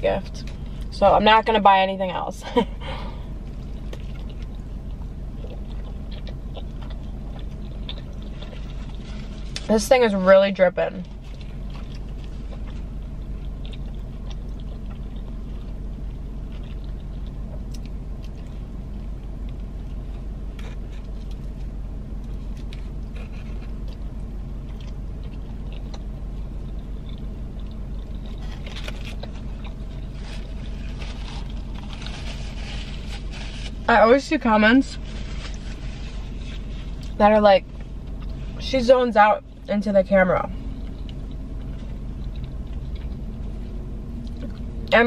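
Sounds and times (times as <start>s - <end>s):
idling car hum: 0.0s - 45.0s
person chewing: 3.0s - 9.7s, 11.0s - 33.8s, 40.5s - 44.9s
paper wrapper crackling: 28.4s - 33.9s.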